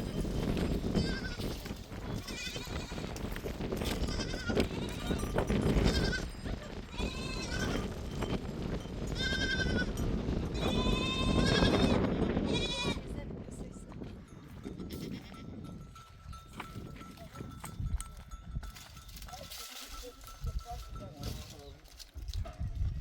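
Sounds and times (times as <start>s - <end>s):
sheep and goats bleating: 0.8s - 8.0s, 9.1s - 13.1s, 14.8s - 15.5s.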